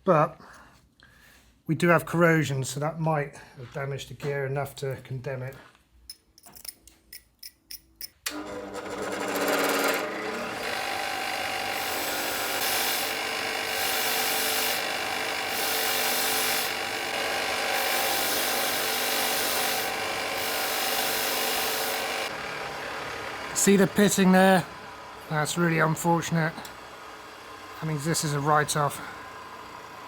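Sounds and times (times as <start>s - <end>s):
power tool running: 8.2s - 30.0s.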